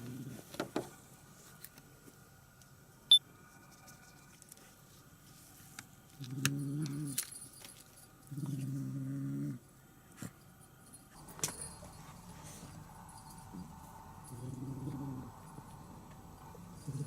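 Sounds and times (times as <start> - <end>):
kitten growling: 8.3 - 9.6, 13.5 - 17.0.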